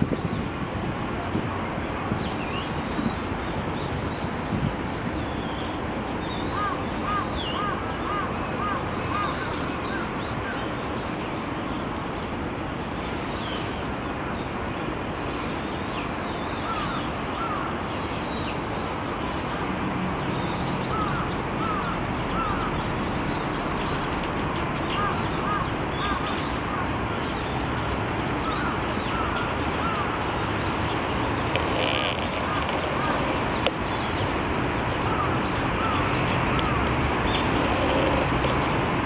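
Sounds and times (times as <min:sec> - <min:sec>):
steady background hiss: 0:00.0 - 0:39.0
crow cawing: 0:20.9 - 0:22.7, 0:25.0 - 0:26.3, 0:31.8 - 0:33.3.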